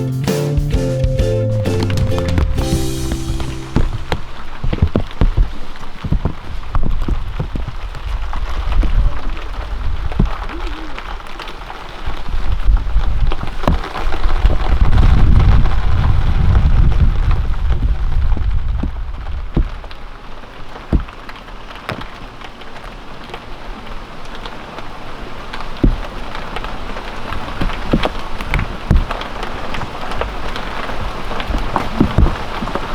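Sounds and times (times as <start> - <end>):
rain falling: 0.0 - 32.9
loud low rumble: 0.7 - 4.8.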